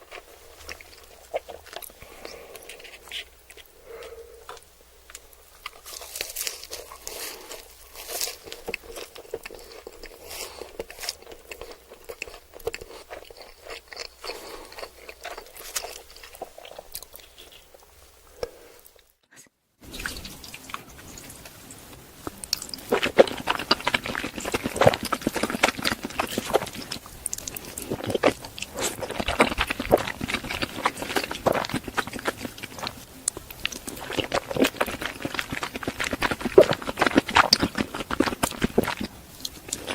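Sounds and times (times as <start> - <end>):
chewing and crunching food: 0.0 - 19.1, 19.8 - 39.9.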